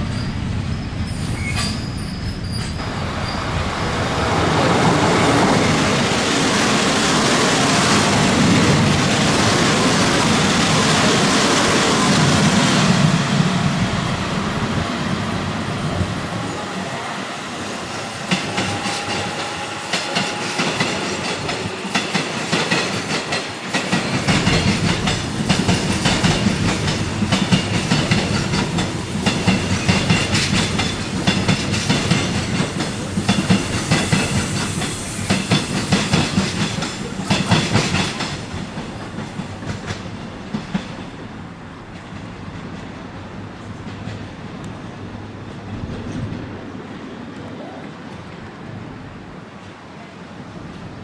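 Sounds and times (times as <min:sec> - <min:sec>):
low train rumble: 0:00.0 - 0:51.0
train wheels clicking over rail joints: 0:17.9 - 0:44.8.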